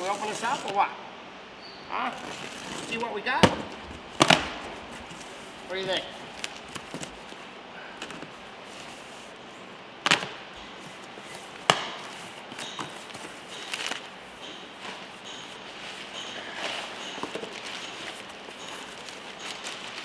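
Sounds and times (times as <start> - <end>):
box handling clicks: 10.0 - 14.1
sharp knocks on a box: 11.6 - 12.2.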